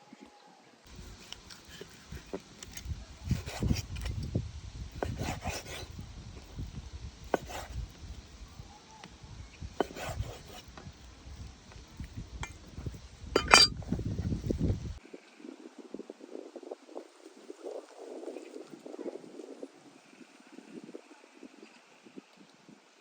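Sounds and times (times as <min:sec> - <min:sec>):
cookware clattering: 0:13.4 - 0:13.8
cookware knocking and clinking: 0:13.4 - 0:13.8.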